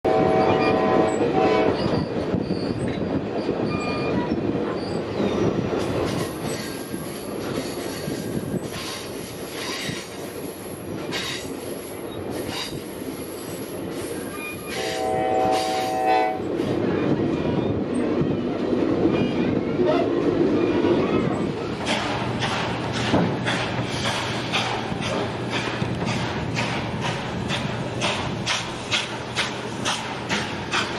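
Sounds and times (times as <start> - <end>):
steam train whistle: 0.1 - 1.8, 14.7 - 16.4
steam train running: 0.1 - 30.9
high wheel squeal: 1.7 - 6.9.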